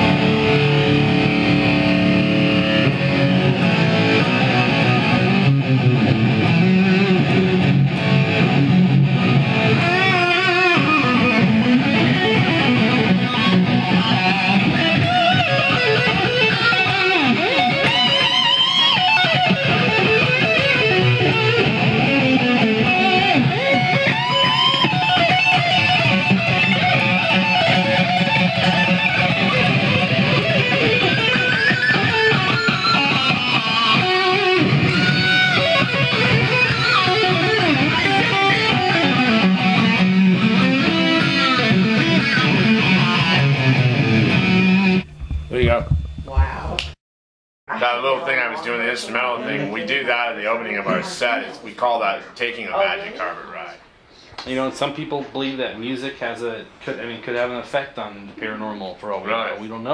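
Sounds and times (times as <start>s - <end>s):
electric guitar solo: 0.0s - 45.1s.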